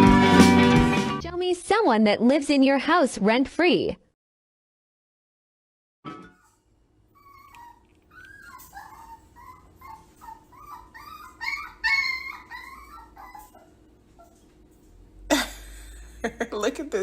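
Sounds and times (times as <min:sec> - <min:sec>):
dog whining and whimpering: 0:06.4 - 0:14.5.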